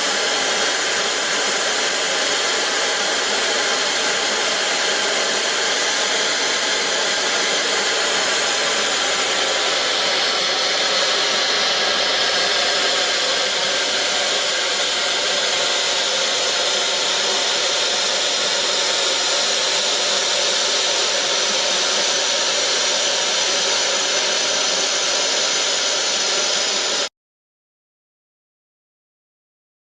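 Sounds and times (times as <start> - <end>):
locomotive steam hissing: 0.0 - 27.1.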